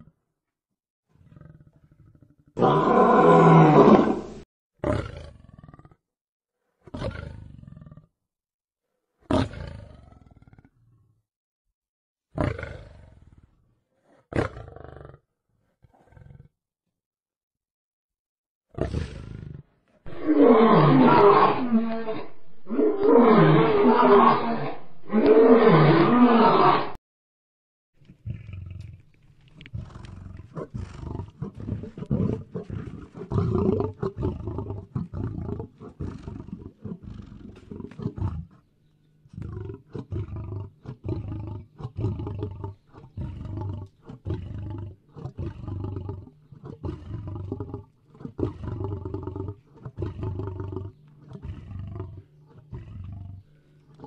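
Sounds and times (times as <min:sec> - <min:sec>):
lion roaring: 0:01.2 - 0:06.0, 0:18.8 - 0:27.0, 0:29.6 - 0:38.6, 0:39.4 - 0:54.0
lion grunting: 0:20.1 - 0:27.0, 0:39.4 - 0:54.0.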